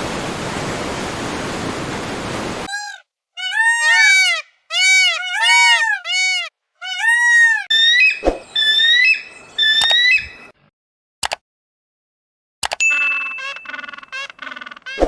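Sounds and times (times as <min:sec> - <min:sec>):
animals calling high-pitched: 0:02.7 - 0:10.5, 0:12.9 - 0:15.0
sharp clicks: 0:11.2 - 0:11.4, 0:12.6 - 0:13.7.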